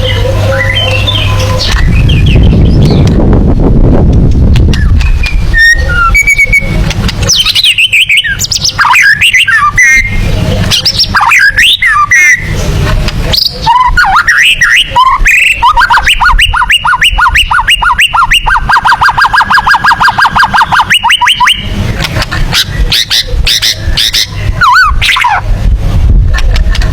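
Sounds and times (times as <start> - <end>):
bird singing varied whistles: 4.7 - 12.5, 13.3 - 21.7, 22.6 - 25.4.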